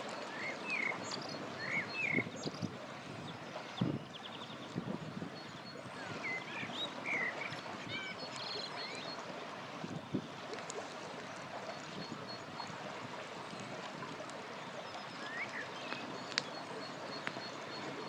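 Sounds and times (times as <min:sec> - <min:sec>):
river flowing: 0:00.0 - 0:02.1, 0:05.8 - 0:18.0.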